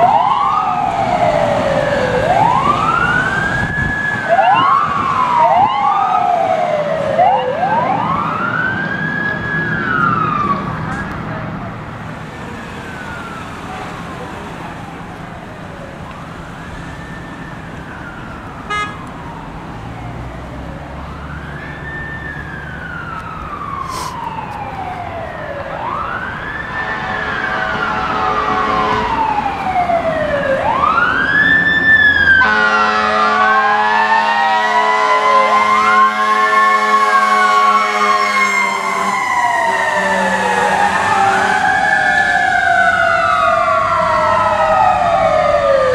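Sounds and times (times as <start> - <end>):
emergency sirens wailing: 0.0 - 45.9
steady horn-like tone: 18.7 - 19.0, 26.8 - 29.2, 32.4 - 33.4.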